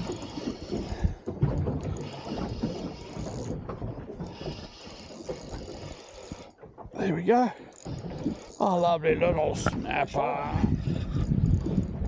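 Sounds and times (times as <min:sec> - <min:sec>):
fishing reel whirring: 0:00.0 - 0:01.1, 0:01.9 - 0:03.6, 0:04.2 - 0:06.6, 0:07.6 - 0:08.6.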